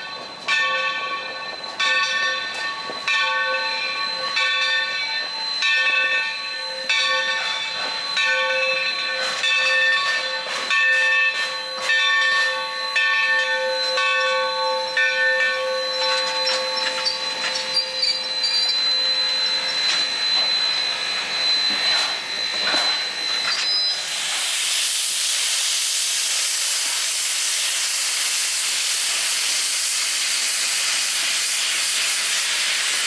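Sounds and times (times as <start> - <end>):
locomotive bell ringing: 0.0 - 24.2
steam hissing: 0.1 - 33.0.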